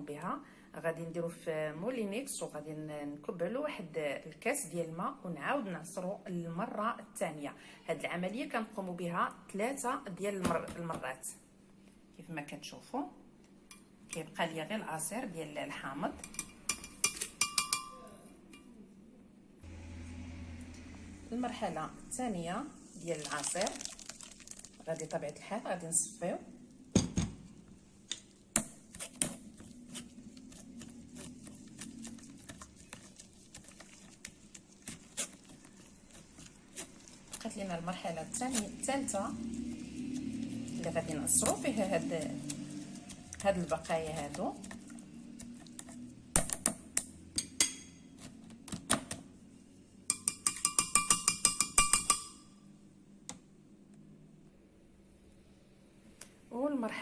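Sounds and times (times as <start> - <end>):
spoon tapping a strainer: 16.2 - 18.0, 50.1 - 52.5.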